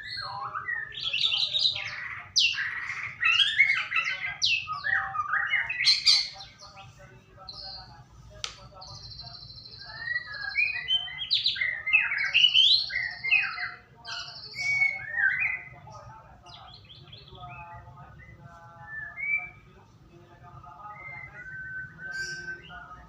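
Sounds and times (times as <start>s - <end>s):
songbird whistling and trilling: 8.9s - 15.7s, 16.5s - 19.7s, 20.8s - 22.9s.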